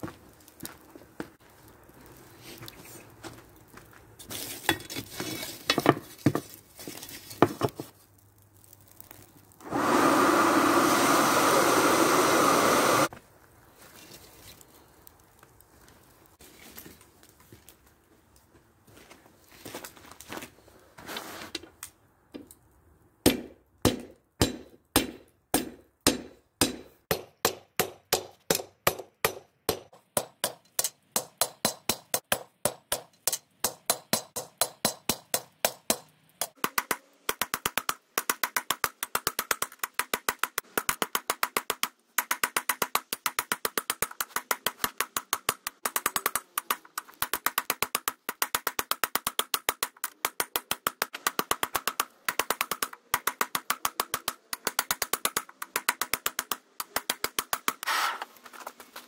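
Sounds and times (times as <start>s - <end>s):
hammer striking steel on anvil: 23.3s - 38.8s.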